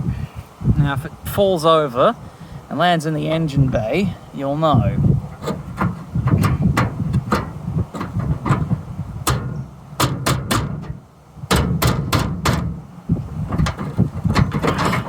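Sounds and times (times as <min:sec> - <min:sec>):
wind rumble on microphone: 0:00.0 - 0:15.0
hammer blows on metal truck: 0:05.4 - 0:13.8.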